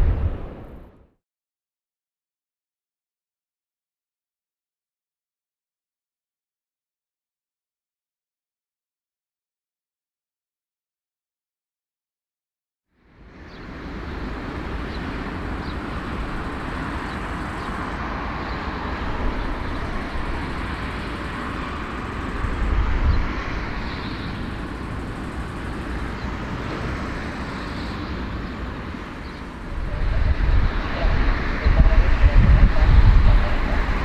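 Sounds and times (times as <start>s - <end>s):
engine rumble and hiss: 13.0s - 34.0s.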